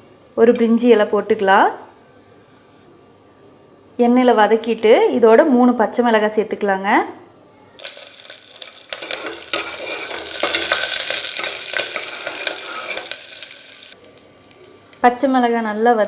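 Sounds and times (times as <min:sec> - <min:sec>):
spices sizzling in hot ghee: 0:07.8 - 0:16.0.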